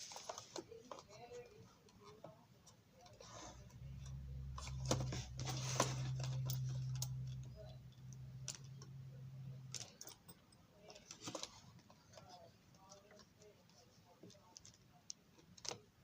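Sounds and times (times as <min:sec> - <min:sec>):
low steady hum: 0:00.0 - 0:16.0
tools and plastic parts clicking: 0:09.6 - 0:13.4.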